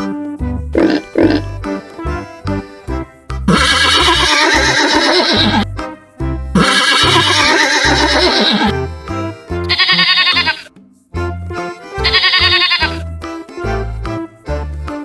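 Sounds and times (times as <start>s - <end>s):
children's music with steady beat: 0.0s - 15.0s
horse whinnying: 3.5s - 5.7s, 6.6s - 8.7s, 9.7s - 10.7s, 12.0s - 13.0s.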